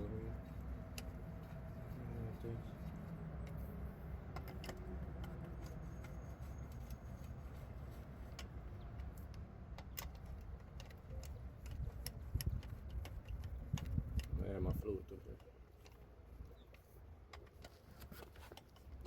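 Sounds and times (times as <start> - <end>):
steady low hum: 0.0 - 17.2
metallic clicks of bolts and wrench: 4.3 - 6.1, 8.4 - 14.4.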